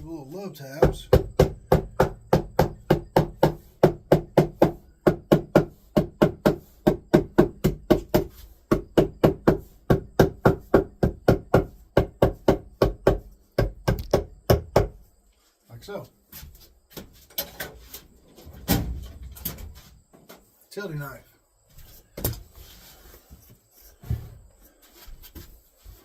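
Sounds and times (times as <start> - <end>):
hammer tapping carpet on wood: 0.8 - 15.0.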